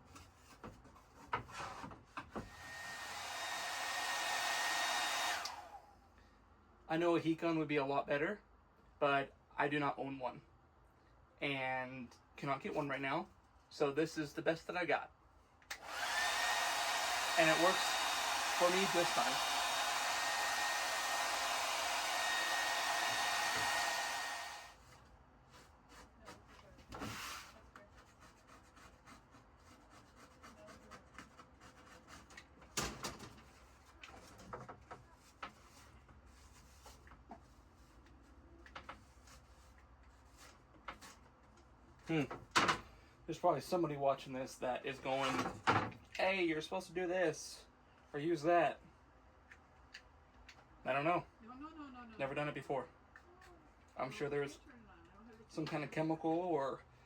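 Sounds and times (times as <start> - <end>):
hair dryer hiss and whine: 2.5 - 5.9, 15.7 - 24.8
hair dryer switch: 2.7 - 5.8, 15.7 - 24.8.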